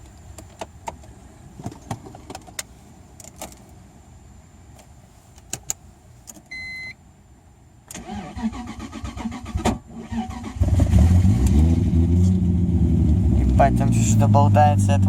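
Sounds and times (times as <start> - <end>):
low steady rumble: 0.0 - 15.0
short electronic beep: 6.5 - 7.0.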